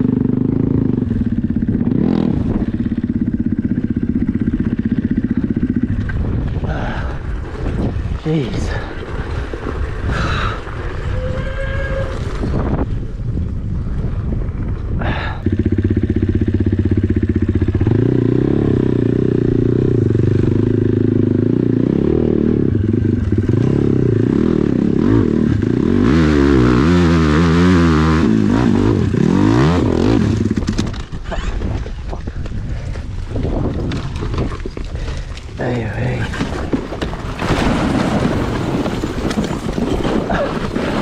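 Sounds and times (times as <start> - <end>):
dirt bike engine revving: 0.0 - 6.6, 15.4 - 31.5
clattering and scraping: 36.1 - 41.0.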